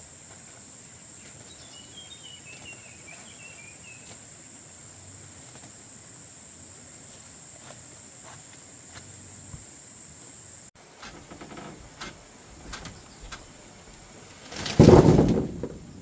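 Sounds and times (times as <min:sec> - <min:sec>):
crickets trilling: 0:00.0 - 0:16.0
light clicks and knocks: 0:11.0 - 0:14.1.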